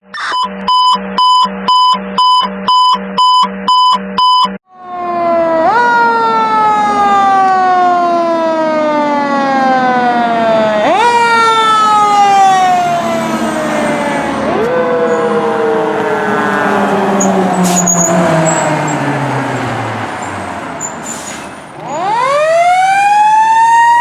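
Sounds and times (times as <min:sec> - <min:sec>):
rapid electronic beeping: 0:00.0 - 0:04.5
fire engine siren: 0:04.6 - 0:24.0.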